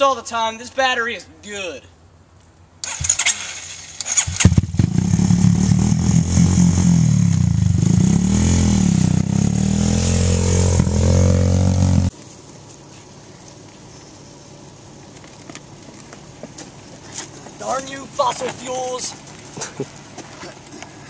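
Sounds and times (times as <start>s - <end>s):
quad bike engine revving: 2.8s - 12.1s.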